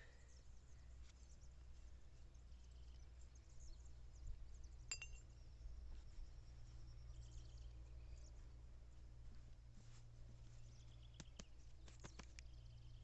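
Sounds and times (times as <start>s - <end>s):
faint low hum: 0.0s - 13.0s
glass shard clinking: 4.9s - 5.3s.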